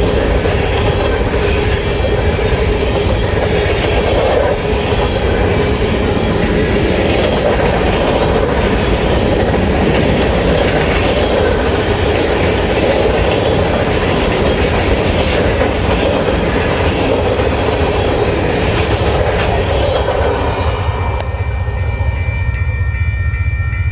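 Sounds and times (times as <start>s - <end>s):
clickety-clack over rail joints: 0.0s - 21.3s
train wheels rushing on rails: 0.0s - 23.2s
steady pitched tone: 11.3s - 23.9s.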